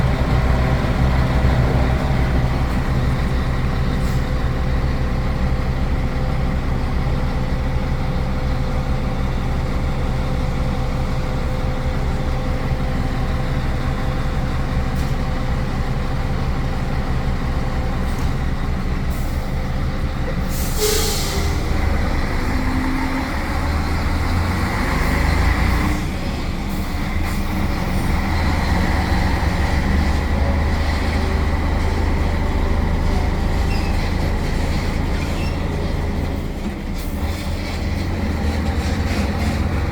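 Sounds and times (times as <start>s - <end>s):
diesel truck engine droning: 0.0s - 39.9s
truck rumbling on road: 0.0s - 39.9s
air brake hiss: 20.5s - 21.8s.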